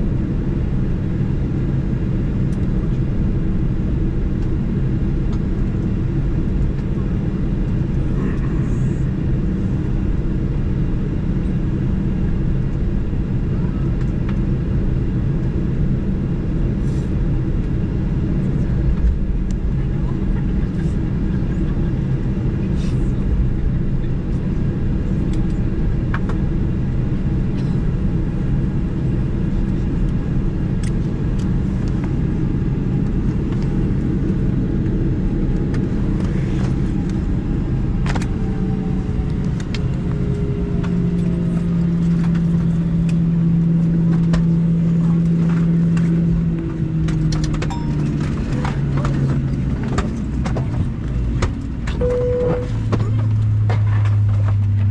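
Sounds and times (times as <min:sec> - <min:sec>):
airplane cabin hum and rumble: 0:00.0 - 0:54.9
steady pitched hum: 0:14.8 - 0:54.9.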